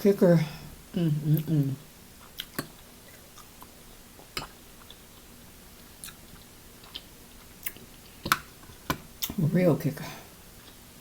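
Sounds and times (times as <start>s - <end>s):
chewing food: 2.2s - 9.4s.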